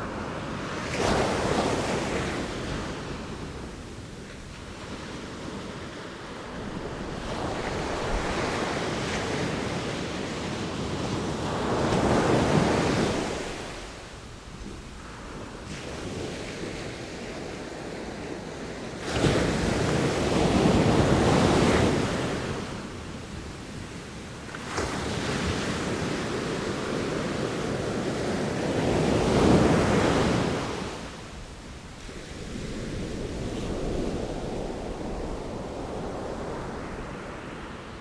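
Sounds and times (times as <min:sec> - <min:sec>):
waves crashing on shore: 0:00.0 - 0:14.4.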